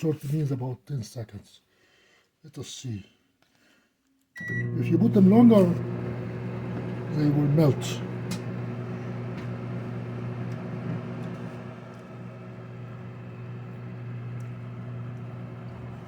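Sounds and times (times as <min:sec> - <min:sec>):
microwave oven humming: 0:04.4 - 0:16.0.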